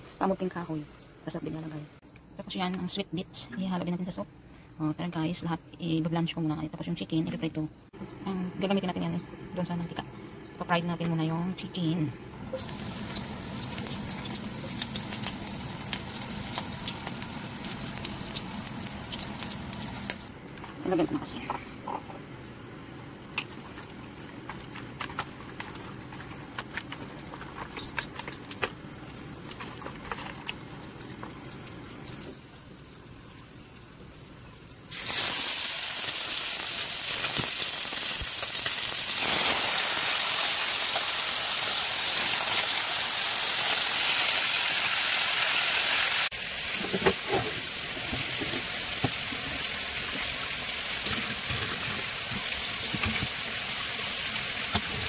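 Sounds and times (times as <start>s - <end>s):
chicken sizzling in hot oil: 12.5s - 20.4s, 34.8s - 55.0s
water running at a sink: 46.8s - 55.0s.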